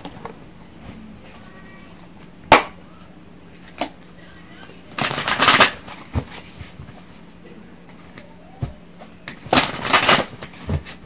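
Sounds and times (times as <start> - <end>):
cards riffling: 4.9 - 7.2, 8.9 - 11.0.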